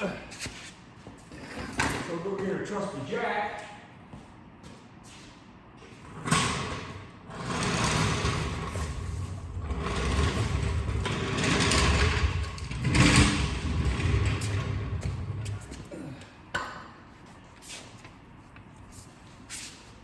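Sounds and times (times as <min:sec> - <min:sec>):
floor jack rolling: 0:06.0 - 0:15.7
floor jack clanking: 0:06.1 - 0:15.6.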